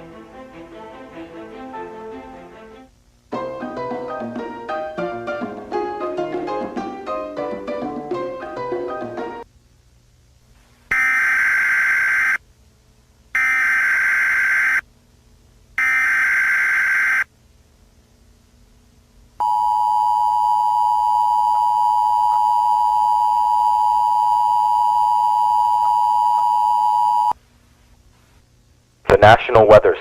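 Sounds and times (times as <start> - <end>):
harsh buzzing data bursts: 10.9 - 12.4, 13.3 - 14.9, 15.8 - 17.3.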